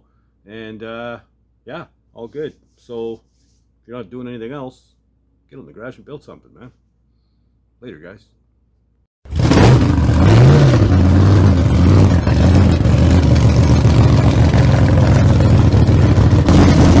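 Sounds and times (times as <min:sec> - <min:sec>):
engine running and revving: 0:09.3 - 0:17.0.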